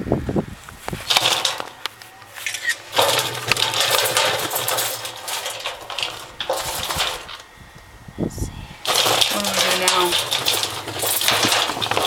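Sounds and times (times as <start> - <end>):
bird seed rattling in a can: 1.0 - 7.5, 8.8 - 12.0.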